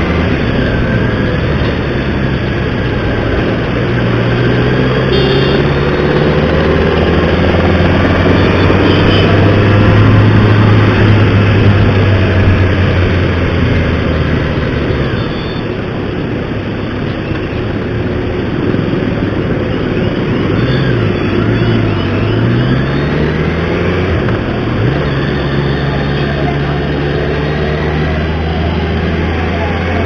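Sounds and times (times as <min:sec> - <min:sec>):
motorcycle engine running: 0:04.8 - 0:15.6.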